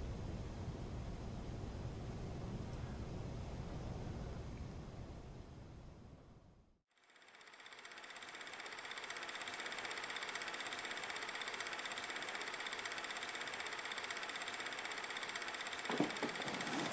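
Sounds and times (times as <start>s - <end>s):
fast mechanical rattle: 6.9s - 16.9s.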